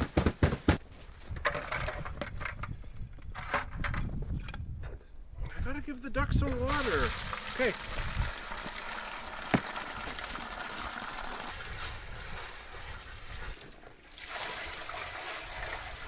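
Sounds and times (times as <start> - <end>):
water pouring and sloshing: 6.5 - 16.0.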